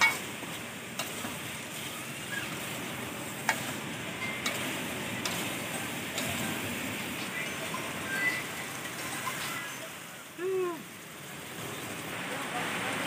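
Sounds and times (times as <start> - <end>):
metal spoon clinking on pan: 0.0 - 0.3, 3.4 - 6.5
food sizzling in a wok: 0.0 - 13.0.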